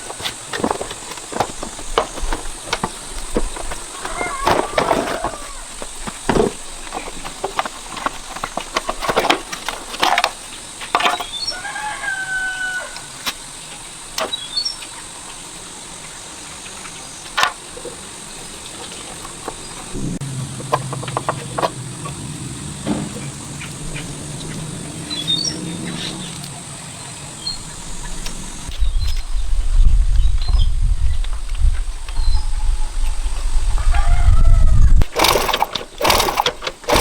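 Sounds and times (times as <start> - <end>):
low steady hum: 18.2 - 28.8.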